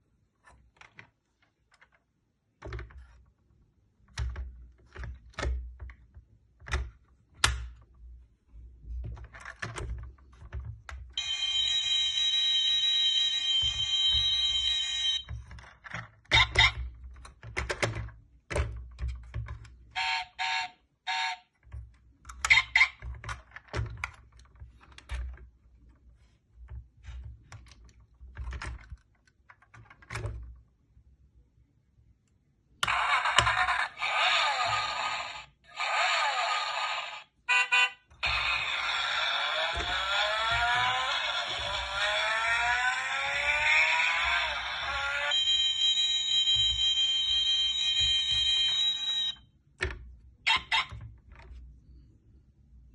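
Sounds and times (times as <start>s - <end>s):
toy car electronic engine sound: 11.2s - 15.3s, 20.0s - 21.5s, 32.8s - 49.4s.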